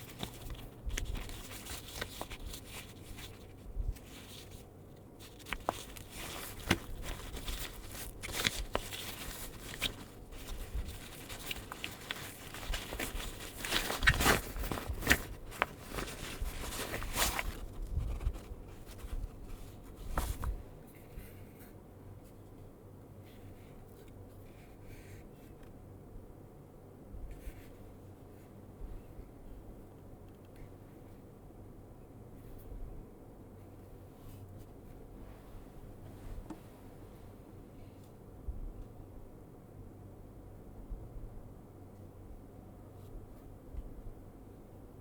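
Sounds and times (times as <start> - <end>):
pouch and packaging rustling: 0.0 - 20.6.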